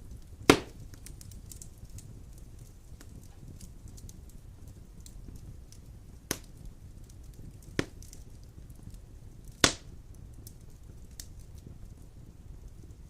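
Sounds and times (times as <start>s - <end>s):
faint fire crackles: 0.0s - 13.0s
low flame rumble: 0.0s - 13.0s
sharp wood pops: 0.5s - 0.8s, 7.8s - 8.1s, 9.6s - 9.9s.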